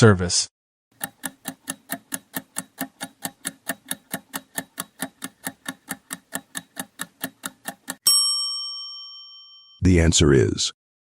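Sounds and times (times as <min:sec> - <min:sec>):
countdown timer ticking: 0:01.0 - 0:08.1.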